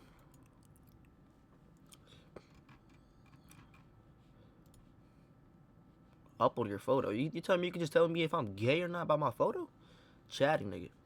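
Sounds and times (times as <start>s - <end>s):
computer mouse clicks: 4.6s - 4.8s.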